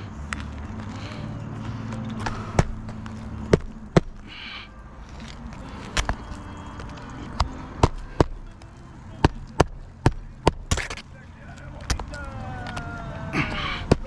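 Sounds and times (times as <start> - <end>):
hammer blows on a roof: 9.2 - 11.0.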